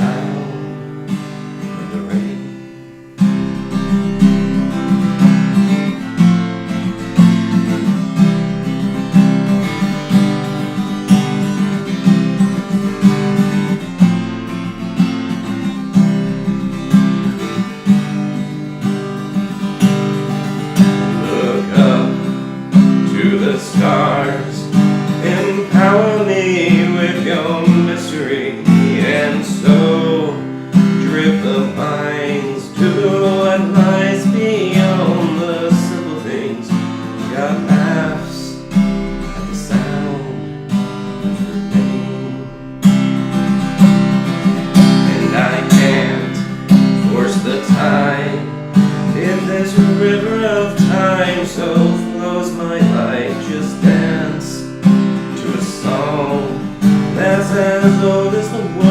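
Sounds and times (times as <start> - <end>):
strummed acoustic guitar: 0.0 - 58.9
melody line: 3.1 - 21.3.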